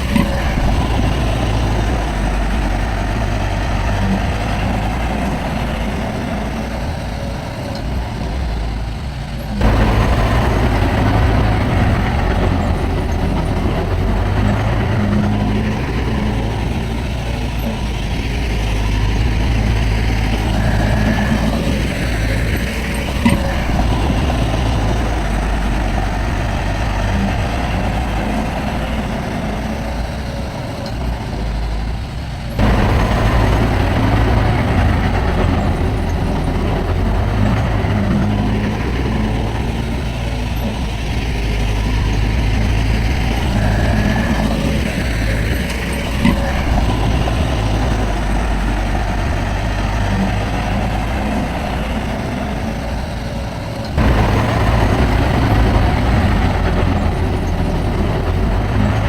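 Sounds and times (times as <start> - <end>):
diesel machinery rumbling: 0.0 - 59.0.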